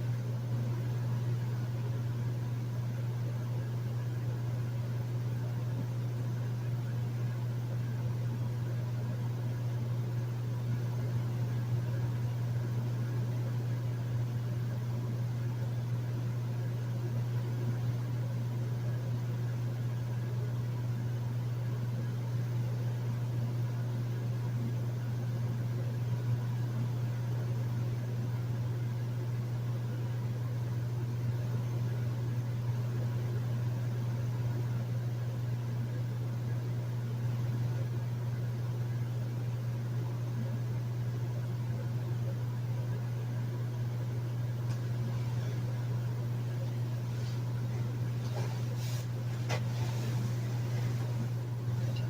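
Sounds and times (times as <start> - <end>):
air conditioner humming: 0.0 - 52.0
fan rush: 44.7 - 52.0.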